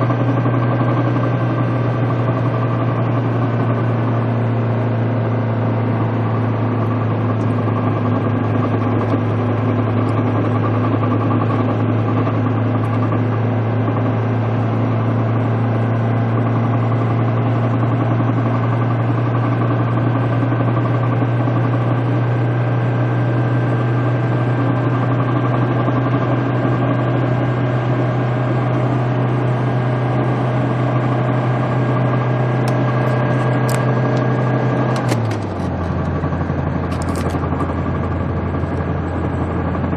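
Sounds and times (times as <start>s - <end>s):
diesel car engine droning: 0.0s - 39.9s
road noise: 28.8s - 39.9s.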